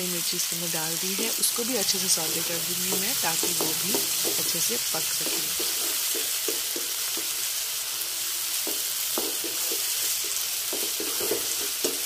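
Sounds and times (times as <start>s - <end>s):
vegetables sizzling in oil: 0.0s - 12.0s
spatula scraping pan: 2.2s - 7.3s, 8.6s - 12.0s.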